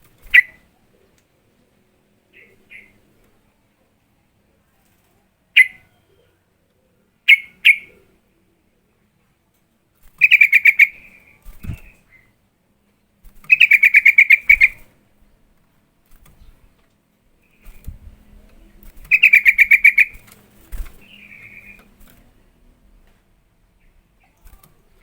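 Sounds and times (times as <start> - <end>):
bird chattering calls: 0.3 - 0.6, 2.3 - 3.0, 5.6 - 5.9, 7.3 - 8.0, 10.2 - 12.2, 13.5 - 14.8, 19.1 - 20.2, 21.0 - 21.8
soft short bird calls: 2.3 - 3.0, 5.6 - 8.1.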